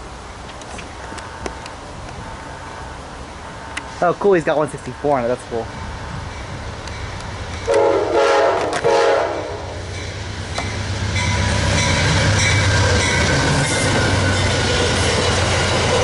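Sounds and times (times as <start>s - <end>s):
train rumbling past on rails: 0.0s - 16.0s
locomotive horn blasts: 7.6s - 9.8s.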